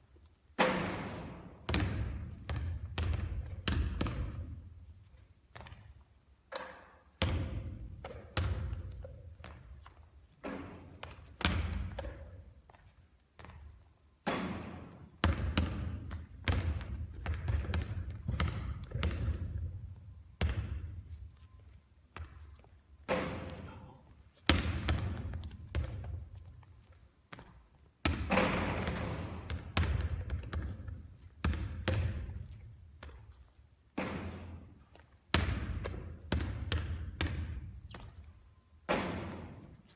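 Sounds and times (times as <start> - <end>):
basketball bouncing on court: 0.6 - 4.6, 5.5 - 5.9, 6.5 - 21.2, 22.1 - 33.4, 34.0 - 38.3, 38.9 - 39.8.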